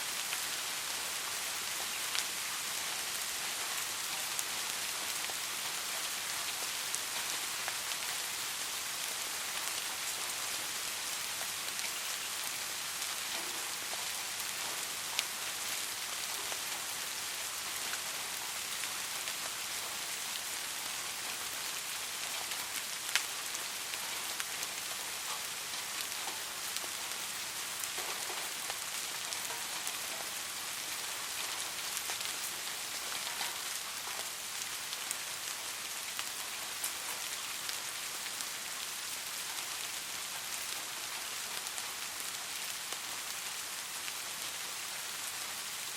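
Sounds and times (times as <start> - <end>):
soft rain hissing: 0.0 - 45.9
raindrops ticking: 23.9 - 35.0.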